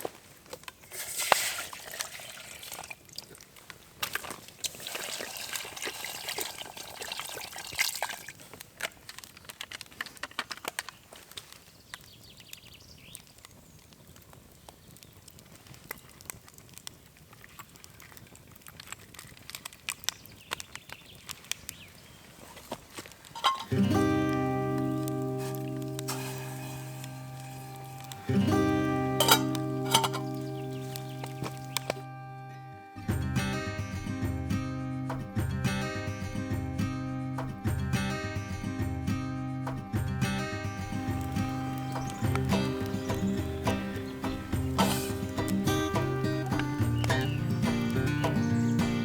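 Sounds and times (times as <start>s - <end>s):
liquid pouring: 0.9s - 3.4s, 4.6s - 8.4s, 23.4s - 32.0s
camp gear clicking and knocking: 23.0s - 24.5s, 29.1s - 32.0s.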